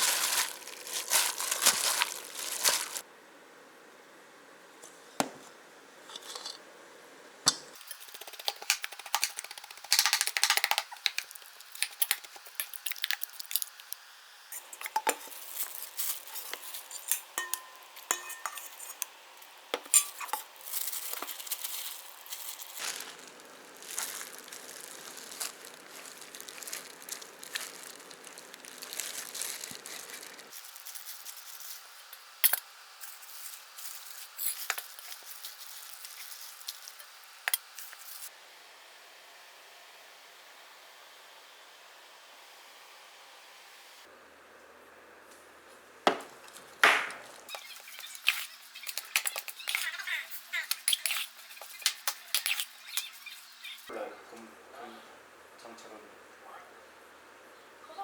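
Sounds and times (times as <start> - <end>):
utensils and dishes clinking: 14.6 - 23.0.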